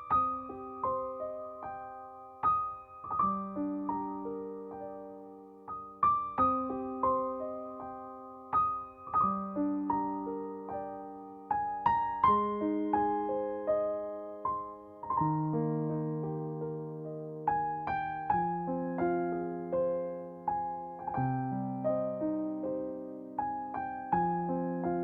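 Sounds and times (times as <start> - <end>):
gentle solo piano melody: 0.0 - 25.0.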